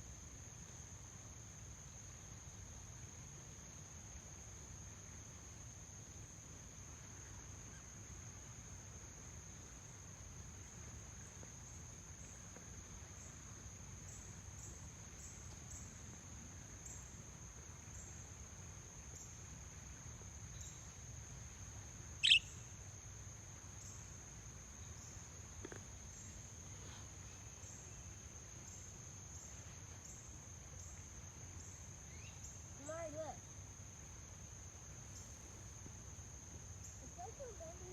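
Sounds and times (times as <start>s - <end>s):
crickets chirring: 0.0s - 37.9s
sharp bird chirp: 22.2s - 22.6s.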